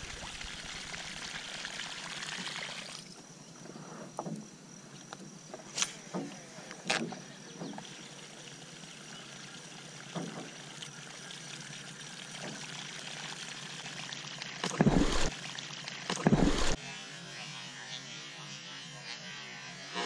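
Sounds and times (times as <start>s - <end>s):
fish splashing: 10.0s - 16.8s.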